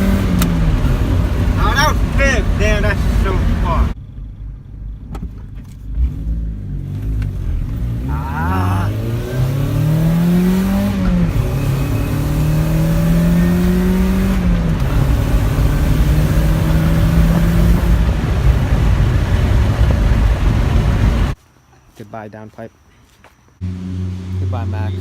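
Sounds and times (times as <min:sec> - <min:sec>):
car engine accelerating: 0:00.0 - 0:21.4, 0:23.6 - 0:25.0
heavy exhaust rumble: 0:00.0 - 0:21.4
road noise: 0:00.0 - 0:25.0.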